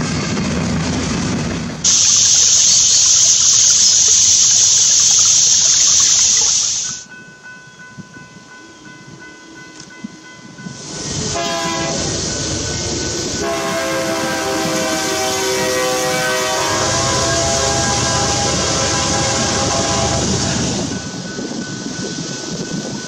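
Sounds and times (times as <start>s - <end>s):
freight cars rolling on rails: 0.0s - 7.0s, 10.6s - 23.0s
loud steady hiss: 1.8s - 7.0s, 10.8s - 22.6s
locomotive air horn blasts: 11.2s - 12.2s, 13.4s - 20.9s.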